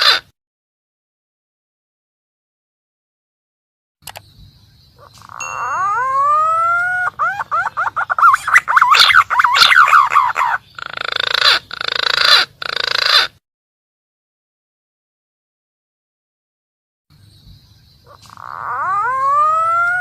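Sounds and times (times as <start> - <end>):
whistled bird lure call: 5.0 - 10.6.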